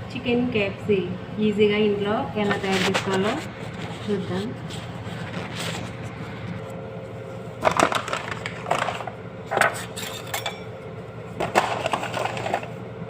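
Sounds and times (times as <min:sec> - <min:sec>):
steady low hum: 0:00.0 - 0:13.0
kitchen items clattering: 0:07.6 - 0:10.7, 0:11.4 - 0:12.7.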